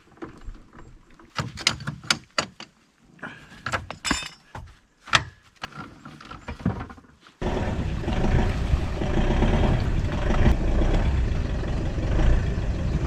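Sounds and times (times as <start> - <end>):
hard objects knocking and clinking: 3.6 - 4.7.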